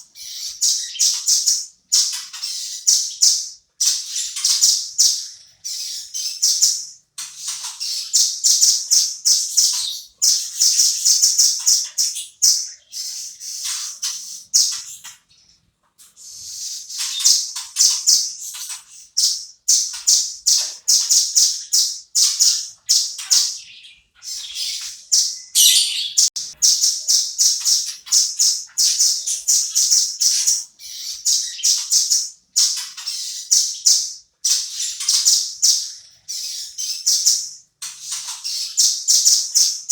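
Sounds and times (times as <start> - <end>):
bird calling rapid high notes: 25.5 - 26.4.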